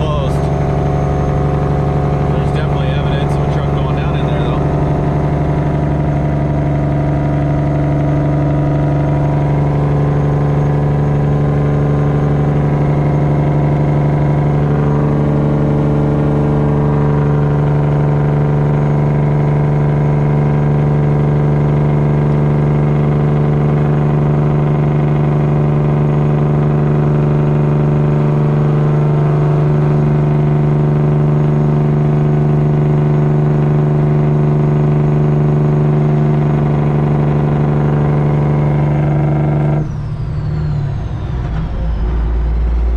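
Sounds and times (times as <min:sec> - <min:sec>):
truck diesel engine running: 0:00.0 - 0:42.9.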